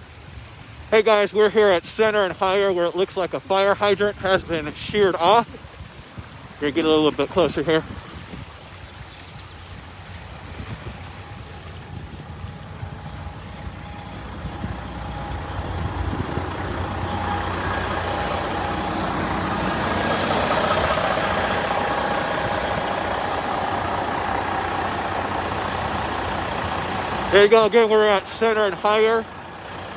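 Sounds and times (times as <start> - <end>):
water rushing from hydrant: 0.0 - 29.9
vehicle engine running: 9.9 - 29.9.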